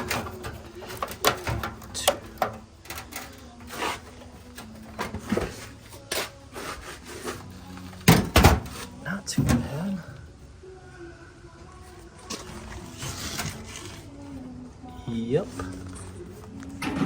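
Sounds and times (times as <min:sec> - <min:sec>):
sheet-metal panels knocking and scraping: 0:00.0 - 0:05.7.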